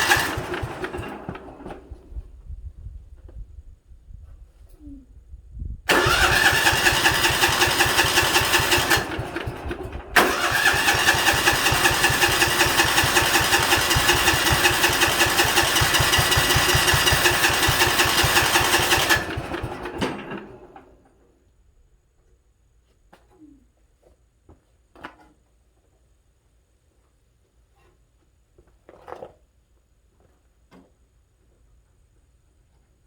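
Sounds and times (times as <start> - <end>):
lawn tractor engine cranking: 0.0 - 2.2, 5.9 - 21.1.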